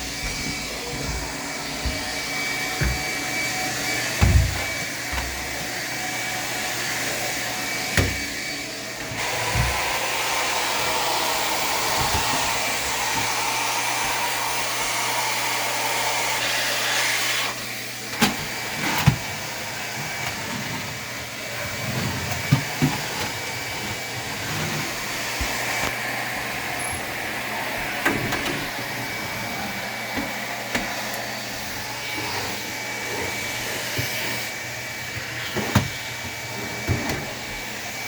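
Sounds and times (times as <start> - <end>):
vacuum tool knocking on floor: 0.1 - 3.3, 4.2 - 5.6, 9.4 - 10.0.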